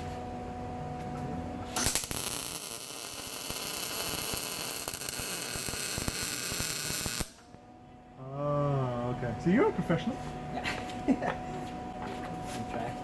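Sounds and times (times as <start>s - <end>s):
electric welder humming: 1.7s - 7.6s
welding arc crackling: 1.8s - 7.5s.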